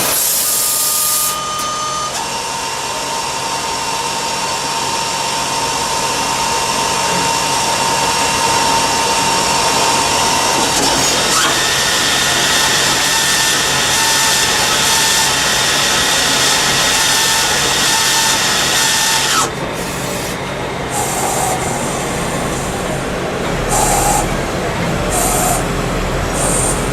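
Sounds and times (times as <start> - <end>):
lathe cutting metal: 0.0 - 26.9
thin machine whine: 0.0 - 26.9.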